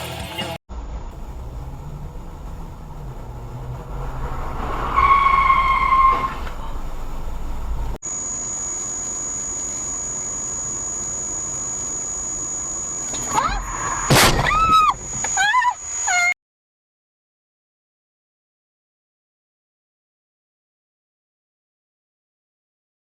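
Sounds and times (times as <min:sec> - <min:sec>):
car road and engine rumble: 0:00.0 - 0:15.2
thin high whine: 0:07.8 - 0:16.4.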